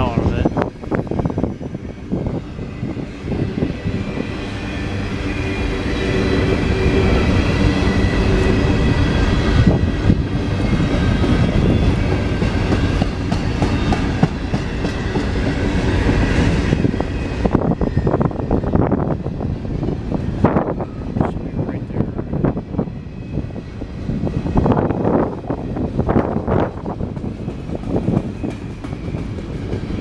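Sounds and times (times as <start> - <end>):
train wheels clicking over rail joints: 12.0 - 16.8, 27.0 - 30.0.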